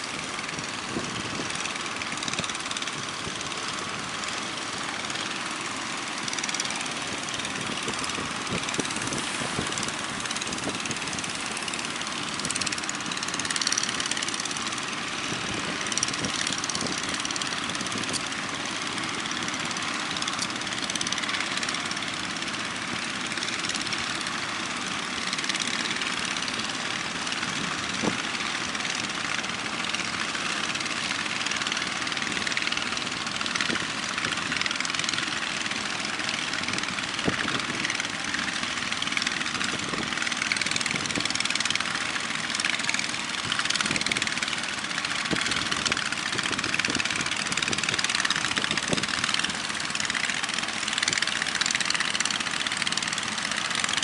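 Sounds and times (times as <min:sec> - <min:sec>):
boat engine running: 0:00.0 - 0:54.0
wind: 0:00.0 - 0:54.0.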